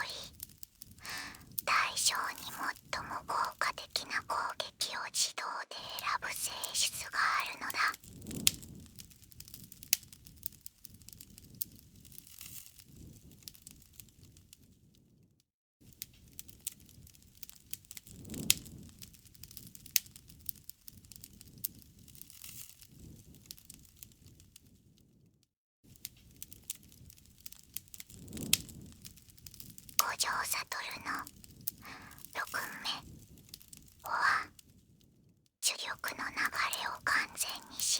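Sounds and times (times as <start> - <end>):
low rumble of burning: 0.0 - 4.3, 7.0 - 15.0, 15.9 - 25.2, 25.9 - 35.3
campfire crackling and popping: 0.0 - 4.5, 5.9 - 14.4, 16.0 - 24.5, 26.0 - 34.4.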